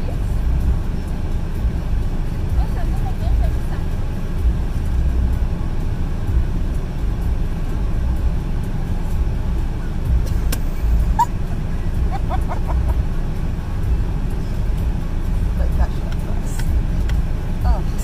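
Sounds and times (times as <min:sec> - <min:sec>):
car engine idling: 0:00.0 - 0:18.0
sharp click: 0:10.3 - 0:10.7.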